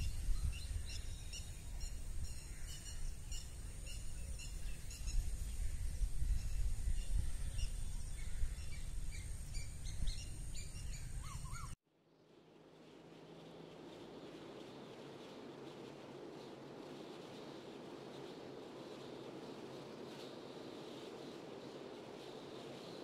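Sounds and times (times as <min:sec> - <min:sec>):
wind rumbling on microphone: 0:00.0 - 0:11.8
small birds chirping: 0:00.0 - 0:12.3.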